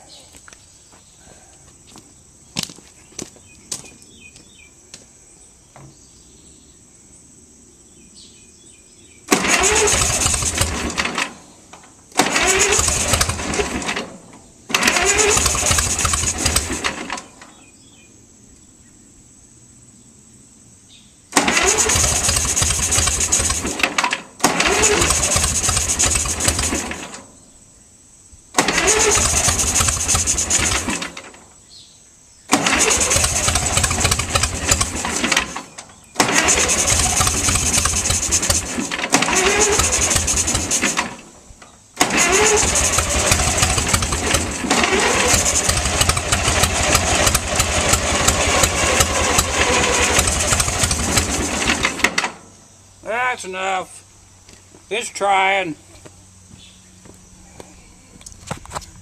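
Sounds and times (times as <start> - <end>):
tractor engine cranking: 9.3 - 17.6, 21.3 - 27.3, 28.5 - 31.5, 32.5 - 52.6.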